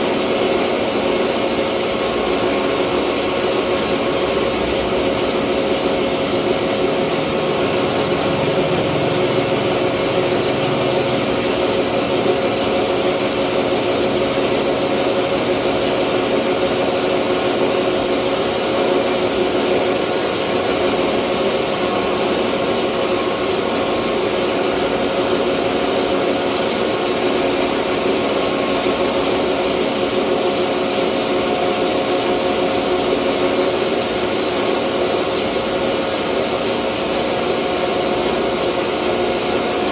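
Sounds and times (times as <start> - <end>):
rice mill machine humming: 0.0 - 39.9.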